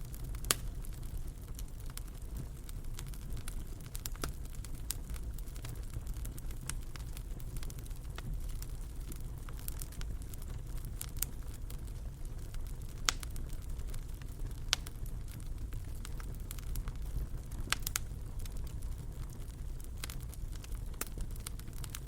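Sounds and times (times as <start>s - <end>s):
low steady rumble: 0.0s - 22.0s
wood fire crackling and popping: 0.0s - 22.0s.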